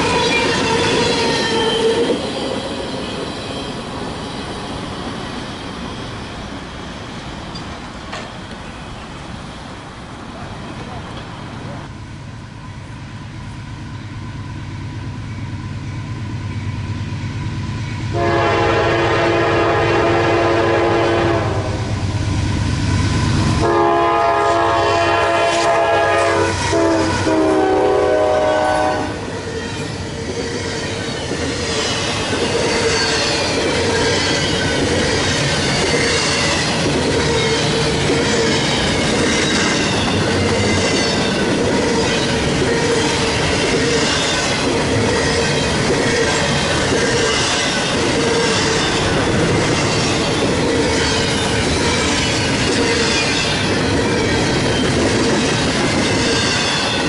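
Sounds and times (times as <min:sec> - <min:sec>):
rail clatter: 0:00.0 - 0:09.2, 0:21.9 - 0:57.0
diesel locomotive rumble: 0:00.0 - 0:57.0
train air horn blasts: 0:18.1 - 0:22.0, 0:23.6 - 0:29.3
wheel squeal: 0:29.6 - 0:37.8.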